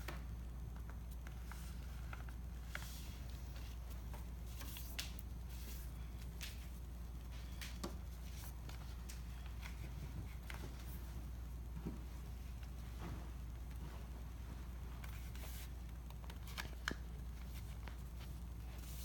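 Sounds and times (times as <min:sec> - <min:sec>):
steady low hum: 0:00.0 - 0:19.0
paper rustling: 0:00.8 - 0:11.1, 0:14.8 - 0:19.0.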